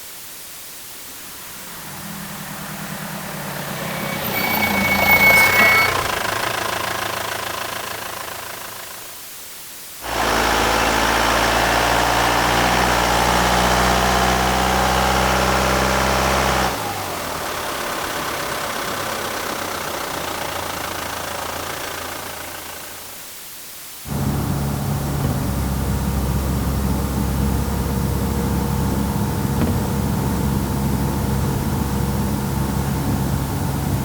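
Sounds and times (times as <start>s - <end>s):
truck engine running: 1.0s - 9.0s, 24.1s - 34.0s.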